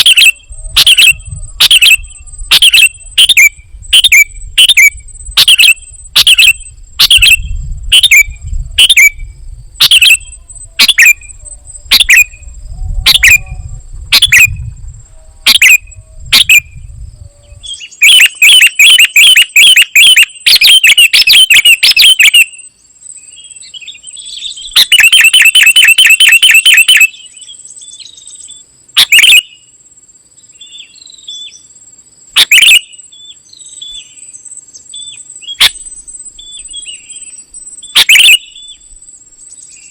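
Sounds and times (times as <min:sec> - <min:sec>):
thin high whine: 0:00.0 - 0:17.0
bird chirping and trilling: 0:00.0 - 0:29.6, 0:32.4 - 0:34.2, 0:34.9 - 0:39.0.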